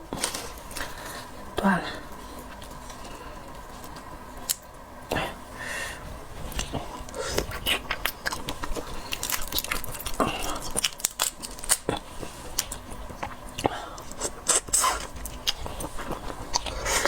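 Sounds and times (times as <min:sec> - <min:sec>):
biting and chewing seafood: 0:06.4 - 0:17.0.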